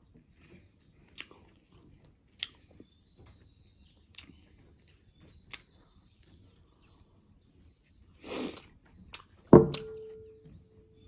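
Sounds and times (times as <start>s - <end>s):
person chewing food: 0.3s - 2.8s, 4.1s - 4.4s, 8.3s - 9.4s
sharp crunches from mouth: 8.2s - 9.5s.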